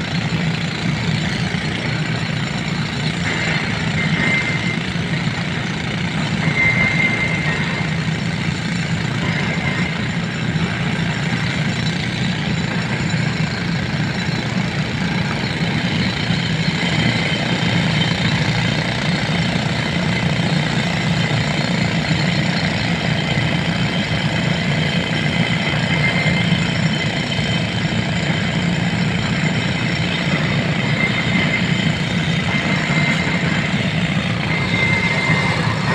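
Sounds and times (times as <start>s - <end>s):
excavator diesel engine running: 0.0s - 35.9s
thin high tone: 28.7s - 35.9s.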